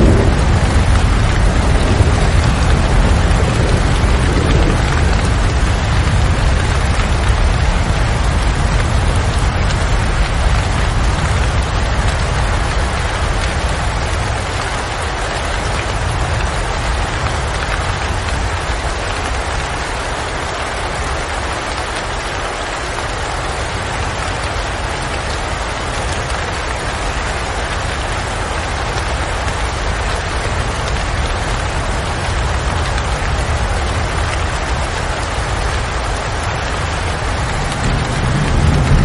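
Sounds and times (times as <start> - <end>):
low rumble: 0.0 - 12.0, 36.7 - 39.0
steady rain hiss: 0.0 - 39.0.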